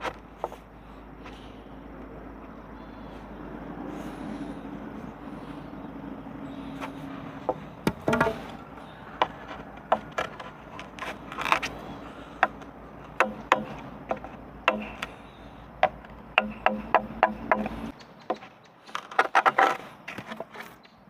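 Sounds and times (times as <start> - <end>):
hand tool striking wood: 7.5 - 8.6, 9.2 - 11.2, 12.4 - 15.1, 15.8 - 18.5.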